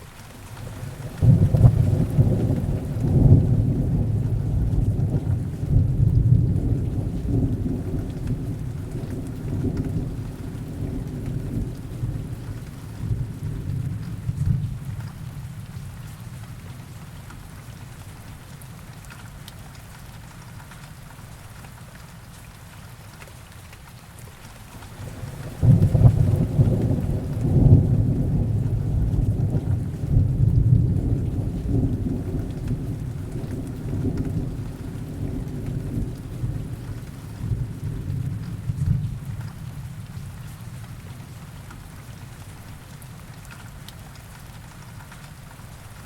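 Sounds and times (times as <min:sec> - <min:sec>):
heavy rain: 0:00.0 - 0:46.0
thunder rumbling: 0:00.6 - 0:16.9, 0:24.8 - 0:41.3.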